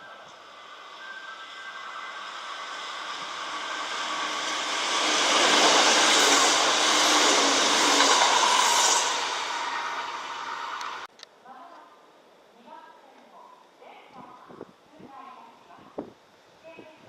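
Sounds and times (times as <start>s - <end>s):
electric train passing: 0.0s - 11.1s.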